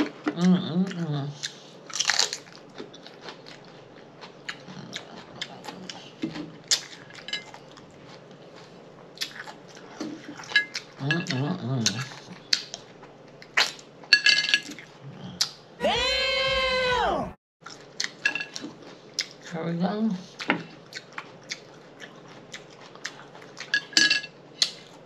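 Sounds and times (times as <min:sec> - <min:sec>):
chewing and lip-smacking: 0:00.1 - 0:13.9, 0:17.6 - 0:19.5, 0:20.2 - 0:23.9, 0:24.6 - 0:25.0.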